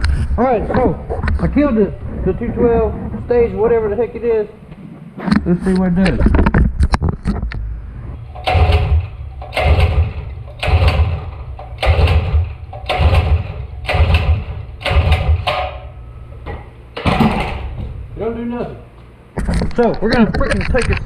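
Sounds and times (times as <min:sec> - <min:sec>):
engine pull-start cranking: 0:08.4 - 0:15.9.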